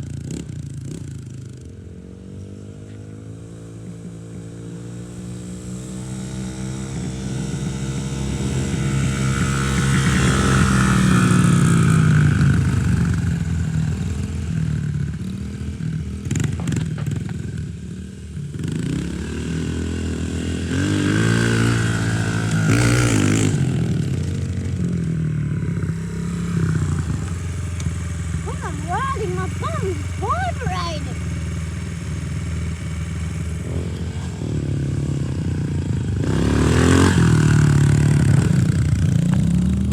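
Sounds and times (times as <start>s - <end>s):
dirt bike engine revving: 25.8s - 38.7s.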